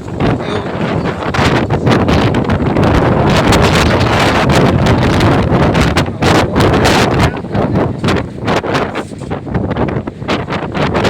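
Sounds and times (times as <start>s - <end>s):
storm wind buffeting microphone: 0.0s - 11.0s.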